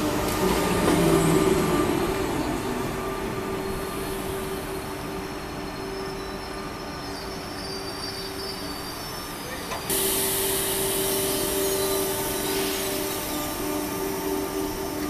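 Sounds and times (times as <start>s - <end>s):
electric train passing: 0.0s - 15.0s
faint high squeal: 1.4s - 15.0s.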